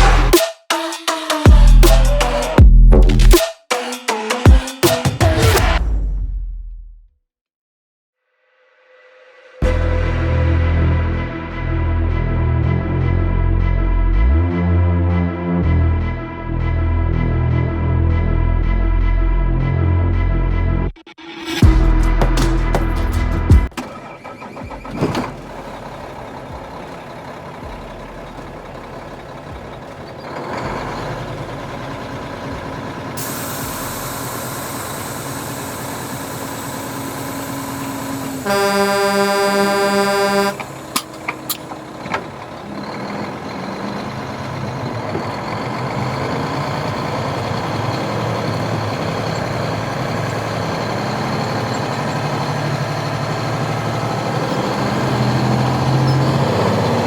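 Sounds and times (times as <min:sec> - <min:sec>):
truck engine running: 0:00.0 - 0:00.4, 0:21.6 - 0:57.0
steady air hiss: 0:33.2 - 0:38.4
truck horn pulses: 0:33.2 - 0:43.8.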